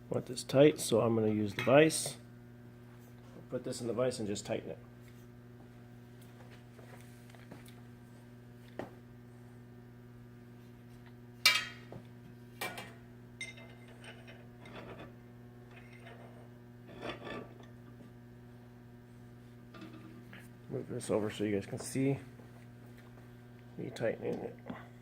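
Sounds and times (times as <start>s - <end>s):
low electrical hum: 0.0s - 25.0s
metallic ring: 13.4s - 15.0s.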